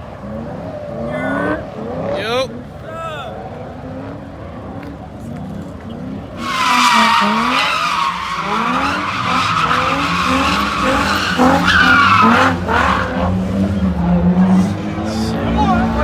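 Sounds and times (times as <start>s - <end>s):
car engine revving: 0.0s - 16.0s
tyres squealing: 6.4s - 16.0s.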